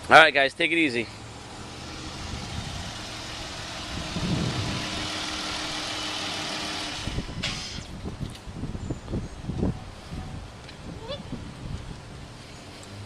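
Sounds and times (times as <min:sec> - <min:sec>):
car engine idling: 0:00.8 - 0:08.0.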